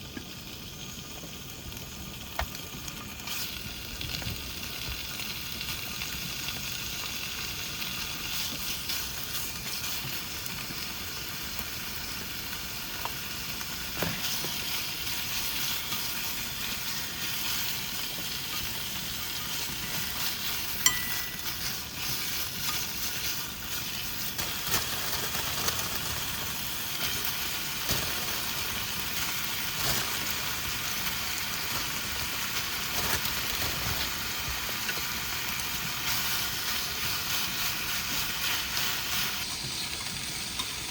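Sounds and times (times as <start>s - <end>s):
noodles sizzling in a pan: 0.0s - 40.9s
utensil clink: 20.8s - 21.8s.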